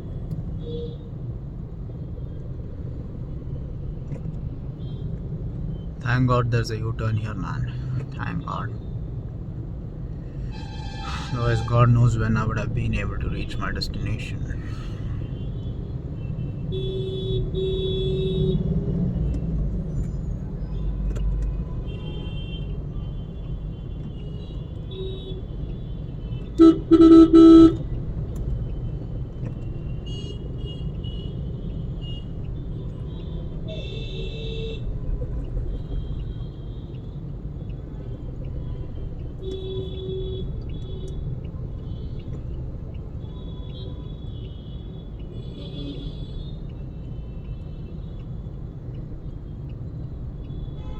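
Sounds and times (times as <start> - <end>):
traffic rumble: 0.0 - 50.9
distant car horns: 10.4 - 14.3, 20.8 - 27.9, 38.6 - 42.5, 50.4 - 50.9
car horn honking: 10.4 - 14.6, 26.3 - 27.9, 50.7 - 50.9.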